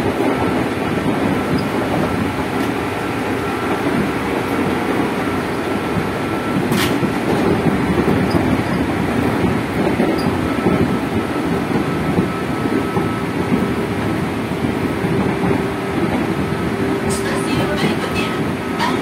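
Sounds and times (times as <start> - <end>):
wheels rumbling on rail: 0.0 - 19.0.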